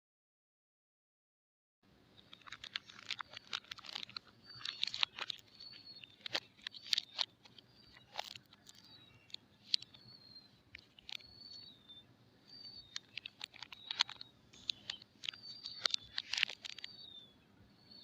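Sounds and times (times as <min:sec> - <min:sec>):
plastic wrapper crinkling: 0:02.2 - 0:09.9, 0:10.7 - 0:11.3, 0:12.8 - 0:16.9
sharp clicks: 0:02.2 - 0:11.8, 0:12.5 - 0:17.2.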